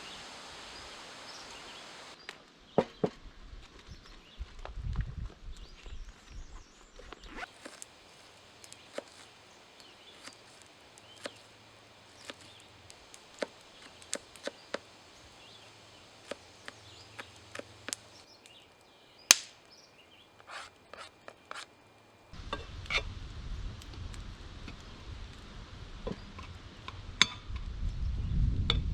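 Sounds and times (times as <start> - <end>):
low rumble: 22.4 - 28.9.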